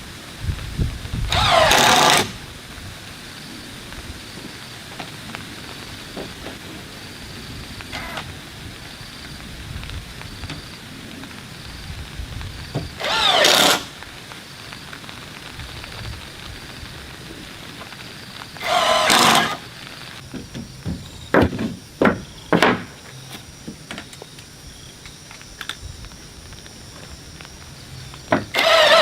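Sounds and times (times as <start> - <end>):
loud drawn-out squeals: 1.3 - 2.4, 7.9 - 8.3, 12.9 - 14.0, 18.6 - 20.1, 28.5 - 29.0
sharp knocks on wood: 20.3 - 22.9.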